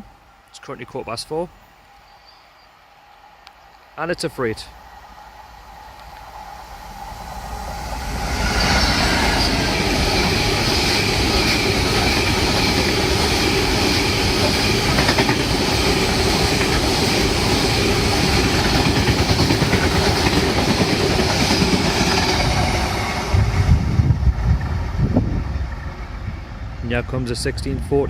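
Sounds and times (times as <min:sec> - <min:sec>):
freight train wheels clattering on rails: 0:08.6 - 0:25.9.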